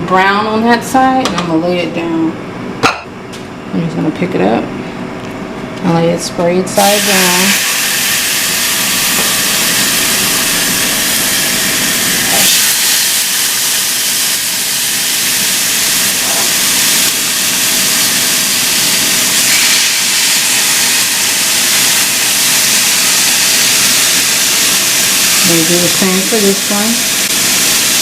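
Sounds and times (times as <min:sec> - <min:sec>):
chicken sizzling in a pan: 0:06.8 - 0:28.0.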